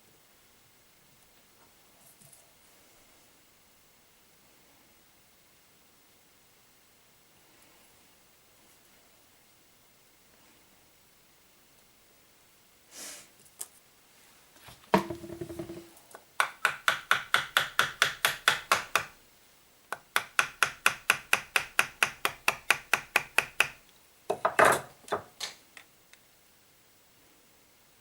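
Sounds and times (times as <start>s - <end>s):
knock with ringing tone: 15.0s - 15.9s
tool clattering: 15.0s - 16.0s.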